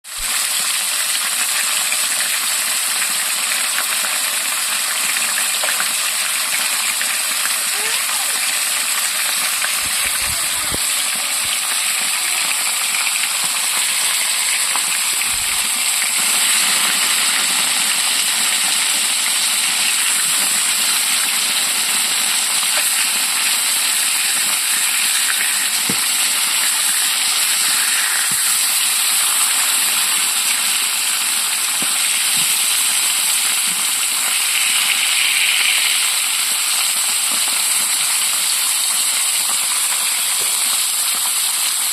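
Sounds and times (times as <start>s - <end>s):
rushing water hiss: 19.8s - 37.5s.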